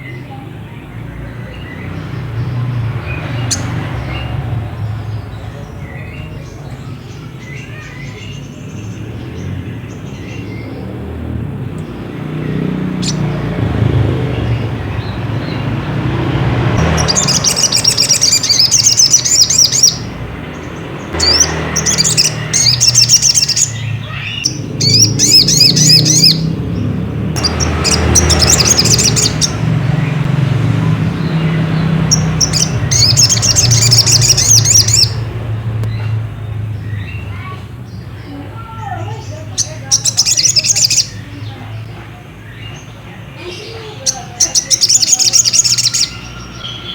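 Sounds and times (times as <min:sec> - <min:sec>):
bird high chirping calls: 0:00.0 - 0:46.9.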